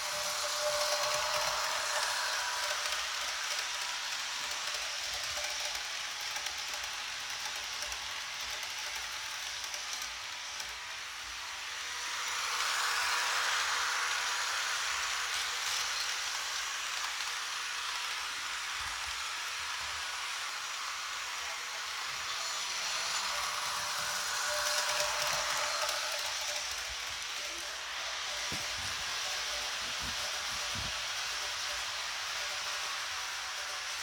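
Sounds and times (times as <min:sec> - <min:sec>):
model locomotive hissing sound: 0:00.0 - 0:34.0.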